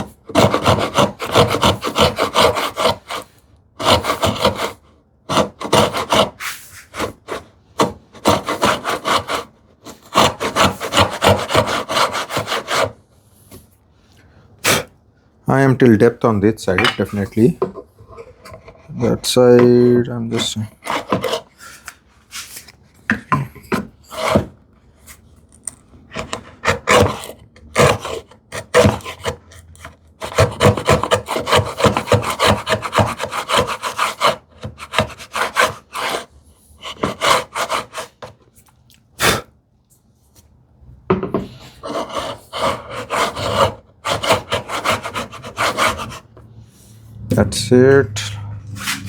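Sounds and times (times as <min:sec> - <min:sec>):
router plane scraping wood: 0:00.0 - 0:13.0, 0:17.0 - 0:21.5, 0:23.7 - 0:24.6, 0:26.2 - 0:29.4, 0:30.2 - 0:38.4, 0:41.8 - 0:46.4.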